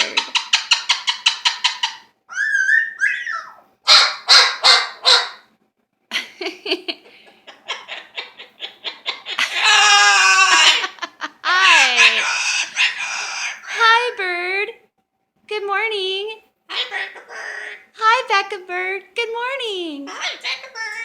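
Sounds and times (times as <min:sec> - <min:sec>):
bird imitating dog barks: 0:01.0 - 0:05.4
bird whistled calls: 0:02.3 - 0:03.6.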